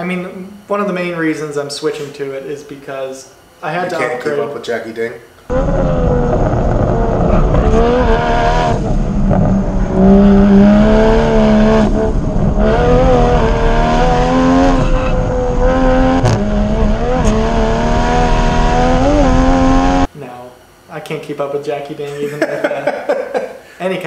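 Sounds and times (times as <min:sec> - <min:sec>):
car engine revving through gears: 0:05.5 - 0:20.1.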